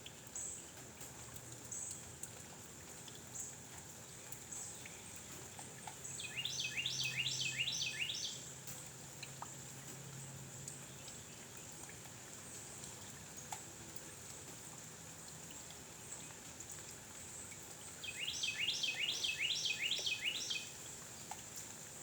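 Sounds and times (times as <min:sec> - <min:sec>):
small bird singing: 0:06.0 - 0:08.5, 0:18.0 - 0:20.9.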